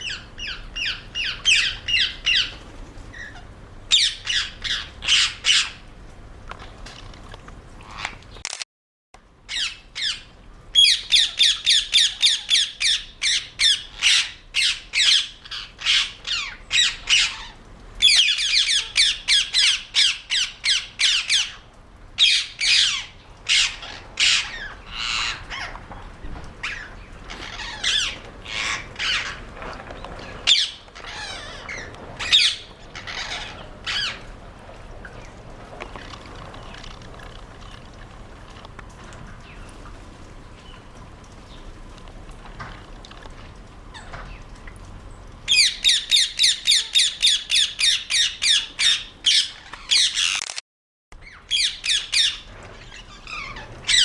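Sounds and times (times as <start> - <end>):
parakeets screeching squawks: 22.2 - 25.8, 26.6 - 29.4, 30.4 - 34.3, 45.5 - 50.4, 51.2 - 54.0.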